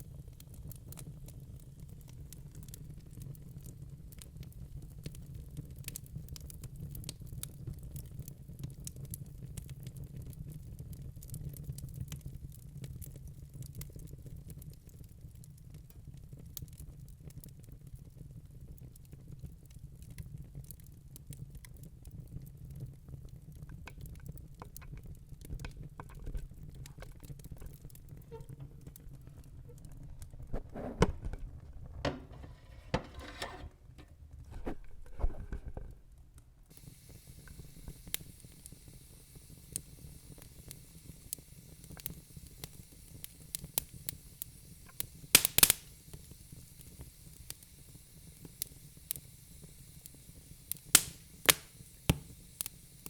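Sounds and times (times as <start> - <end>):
logs crackling in fireplace: 0.0 - 53.0
low rumble of flames: 0.0 - 53.0
faint steady hiss: 20.5 - 53.0.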